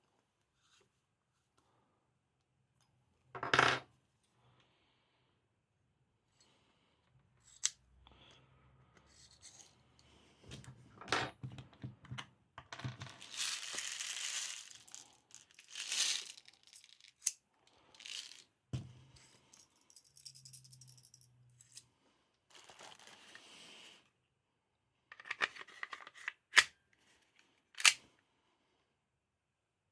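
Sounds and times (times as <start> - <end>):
clicks and knocks of small parts: 10.5 - 18.4, 25.1 - 26.7, 27.4 - 28.1
packaging rustling and scraping: 13.0 - 17.2, 18.0 - 18.4, 22.5 - 23.4.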